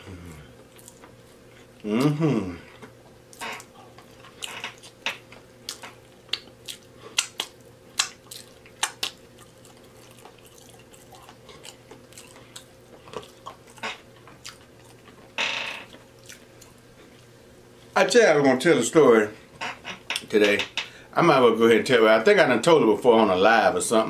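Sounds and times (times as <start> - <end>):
person chewing with mouth open: 0.1 - 15.3, 15.9 - 17.3
wet lip smacks: 5.7 - 9.2.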